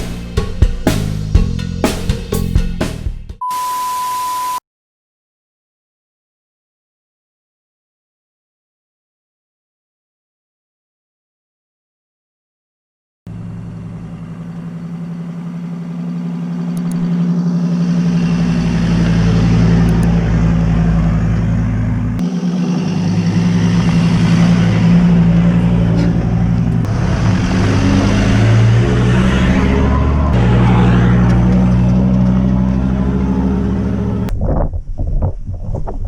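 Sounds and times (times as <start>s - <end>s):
vehicle engine driving: 0.0s - 3.3s, 13.3s - 34.4s.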